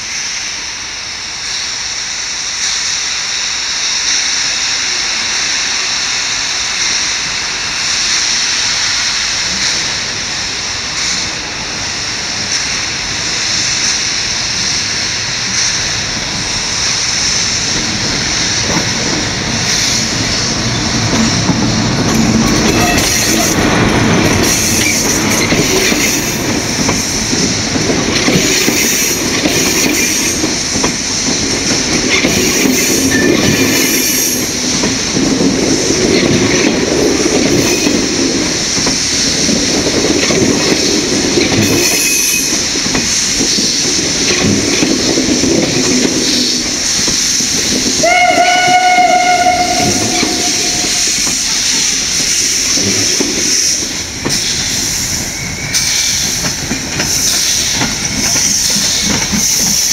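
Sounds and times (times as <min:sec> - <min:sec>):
train rumbling on rails: 0:00.0 - 0:59.9
steam whistle blast: 0:22.7 - 0:23.6, 0:48.0 - 0:51.0.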